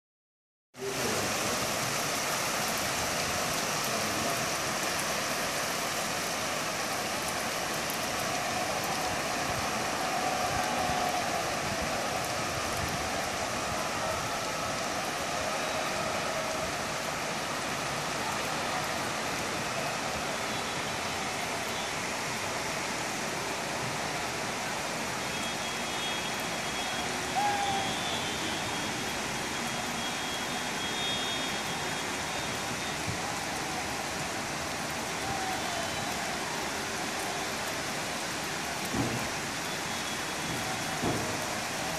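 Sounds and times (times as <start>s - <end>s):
steady rain falling: 0.8s - 41.9s.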